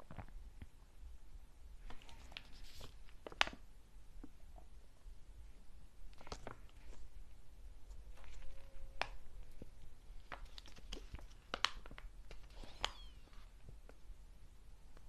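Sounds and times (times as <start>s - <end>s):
snack packaging clicks and crinkles: 6.1s - 7.0s, 10.2s - 13.2s
faint squeak: 8.0s - 9.5s, 12.5s - 13.5s.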